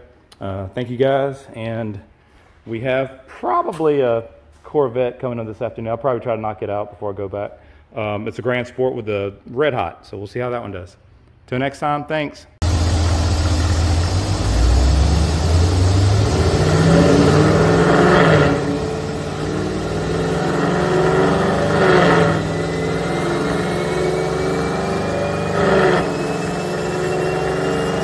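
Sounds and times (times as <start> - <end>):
car engine exhaust revving: 12.6 - 28.0
faint rising whine: 12.6 - 28.0.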